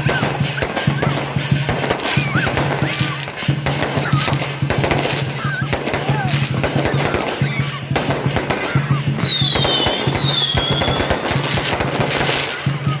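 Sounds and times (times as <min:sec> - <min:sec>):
fireworks crackling bursts: 0:00.0 - 0:13.0
music drumbeat: 0:00.0 - 0:13.0
high falling whistles: 0:09.2 - 0:11.2.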